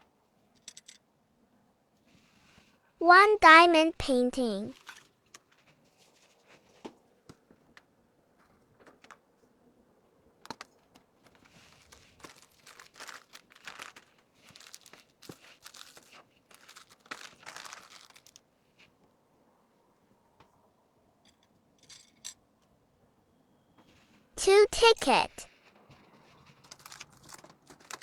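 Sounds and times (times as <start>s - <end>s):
plastic packaging crinkling: 11.3s - 18.4s, 26.6s - 28.0s.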